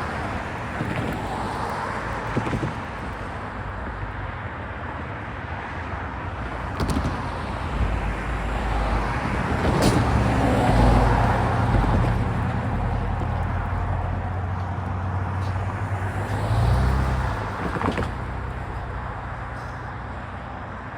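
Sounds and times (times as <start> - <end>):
heavy vehicle rushing by: 6.8 - 20.8.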